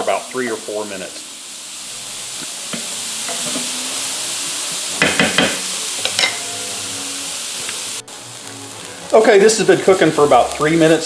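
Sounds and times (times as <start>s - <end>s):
vegetables sizzling in a skillet: 0.0s - 11.0s
utensil scraping a pan: 2.4s - 3.8s.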